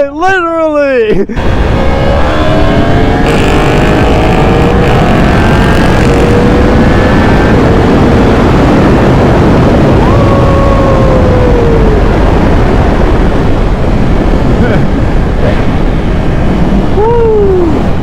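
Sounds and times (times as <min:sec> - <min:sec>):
wind rush on microphone: 0:01.3 - 0:18.0
motorcycle engine at high revs: 0:01.4 - 0:10.3
second engine falling in pitch: 0:01.5 - 0:12.1.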